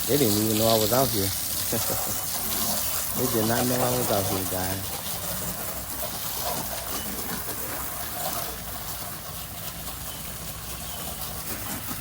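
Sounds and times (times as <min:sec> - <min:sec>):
pump humming: 0:00.0 - 0:12.0
water spraying from pressure washer: 0:00.0 - 0:12.0.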